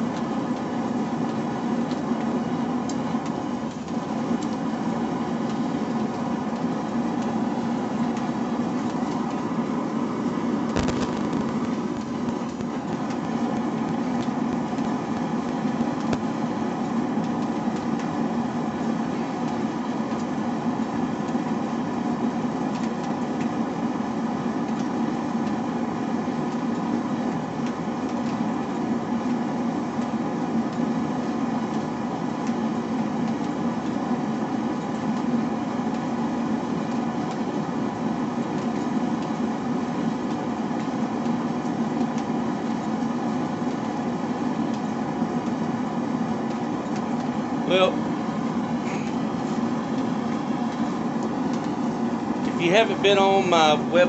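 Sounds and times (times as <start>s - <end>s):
forge droning: 0.0s - 54.0s.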